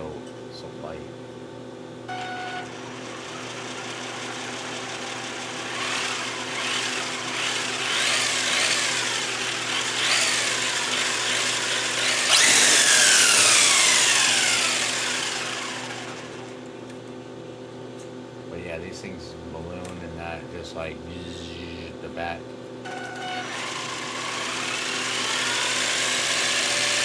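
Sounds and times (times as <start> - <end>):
small electric motor whirring: 2.1 - 16.8, 22.9 - 27.0.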